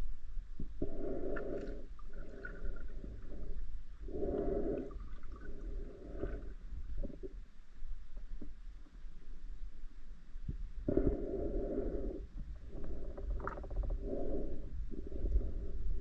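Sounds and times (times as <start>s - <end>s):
breathing through a snorkel: 0.8s - 6.5s, 10.9s - 16.0s.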